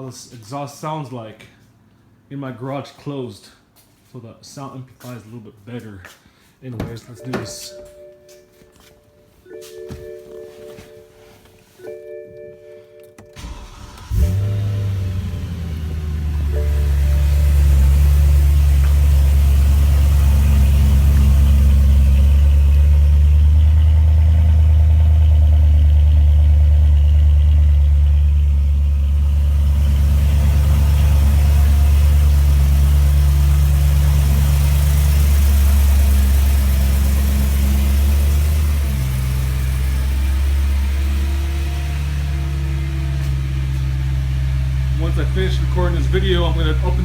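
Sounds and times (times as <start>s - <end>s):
car engine idling: 13.4s - 47.0s.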